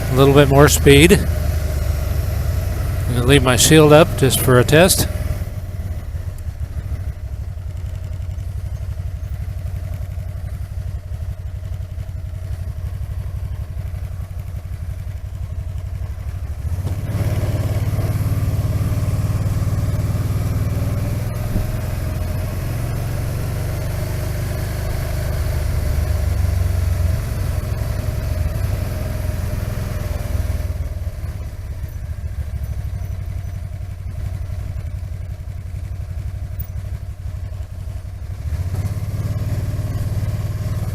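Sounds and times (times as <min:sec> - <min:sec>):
engine low rumble: 0:00.0 - 0:40.9.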